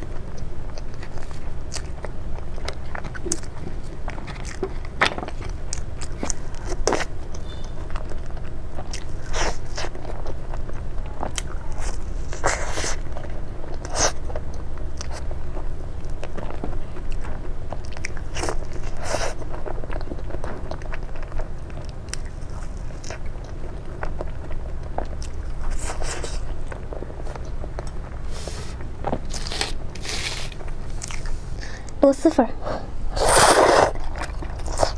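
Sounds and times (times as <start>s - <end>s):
crunchy eating: 0.0s - 32.0s, 32.6s - 34.9s
steady low hum: 0.0s - 34.9s.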